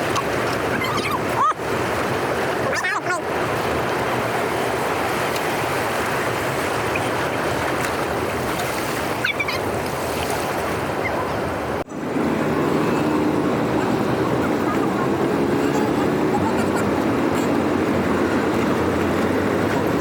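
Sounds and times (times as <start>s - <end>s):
water rushing through dam outlet: 0.0s - 20.0s.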